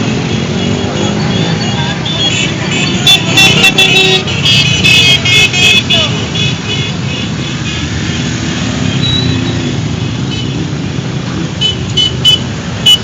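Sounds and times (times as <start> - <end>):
motorcycles passing: 0.0 - 13.0
short horn beeps: 9.0 - 9.7.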